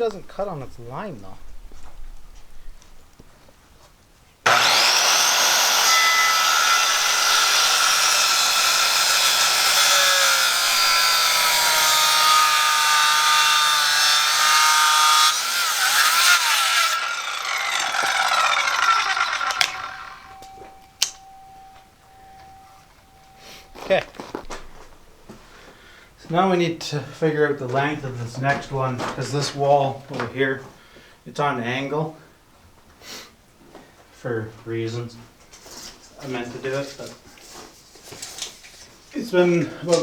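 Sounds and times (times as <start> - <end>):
power saw cutting wood: 4.5 - 23.8.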